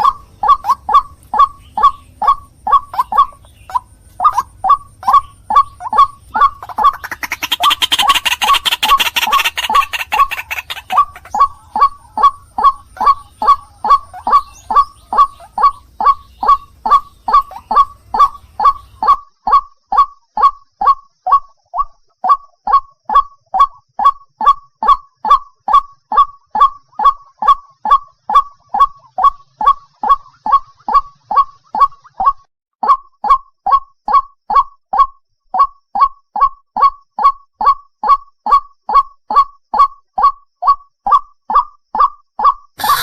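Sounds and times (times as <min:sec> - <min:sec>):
waterhen calling harsh notes: 0:00.0 - 0:19.6, 0:42.8 - 0:43.0.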